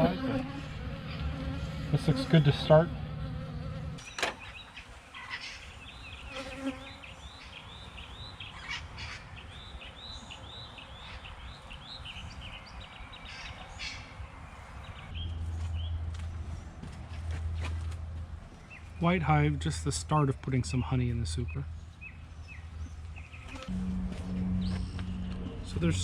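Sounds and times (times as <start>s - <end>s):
bees buzzing: 0.0s - 4.0s, 6.2s - 7.4s
high arched note: 23.7s - 26.0s.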